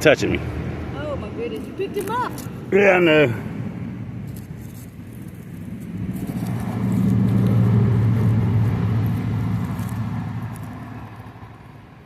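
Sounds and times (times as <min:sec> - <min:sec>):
vehicle driving past: 0:02.4 - 0:12.0.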